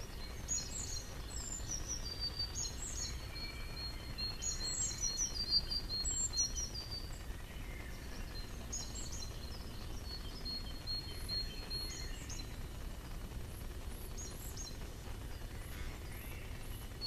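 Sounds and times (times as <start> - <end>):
low background rumble: 0.0 - 17.0
songbirds chirping: 0.0 - 17.0.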